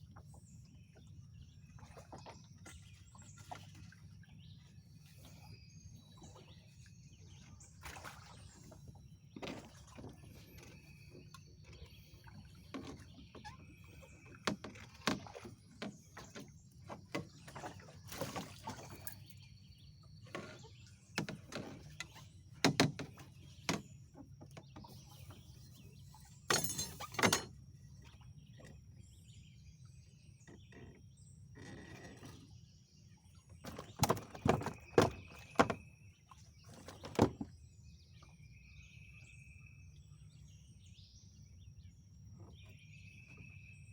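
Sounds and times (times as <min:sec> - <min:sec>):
sharp knocks and thumps: 0:22.6 - 0:23.9.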